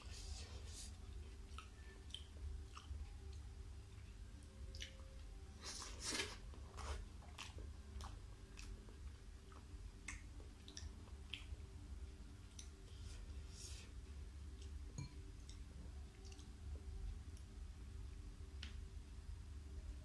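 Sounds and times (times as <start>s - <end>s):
close chewing: 1.2s - 11.6s.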